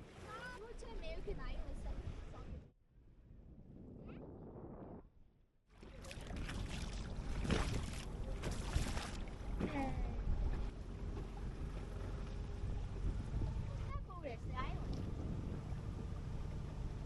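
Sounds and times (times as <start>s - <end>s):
wind noise: 1.8s - 5.2s, 12.6s - 16.4s
boat engine rumble: 5.6s - 17.0s
water noise: 5.7s - 17.0s.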